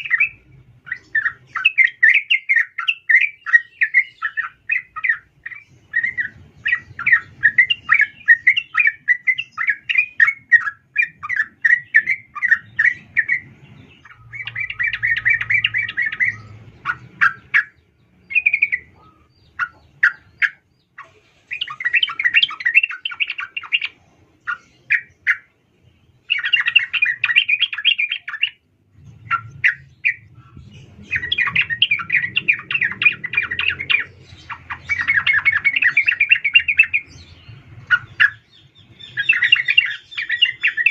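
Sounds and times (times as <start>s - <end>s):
bulbul chattering calls: 0.0s - 40.9s.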